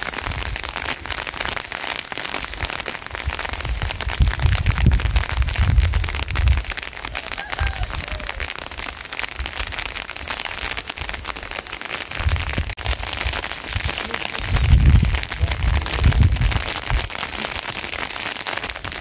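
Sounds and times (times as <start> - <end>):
heavy rain on hard surface: 0.0 - 19.0
low rumbling: 12.4 - 17.1.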